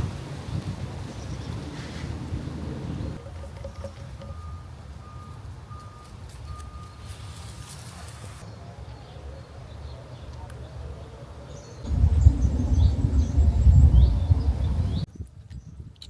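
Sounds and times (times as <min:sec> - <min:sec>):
low rumbling noise: 0:11.8 - 0:15.1.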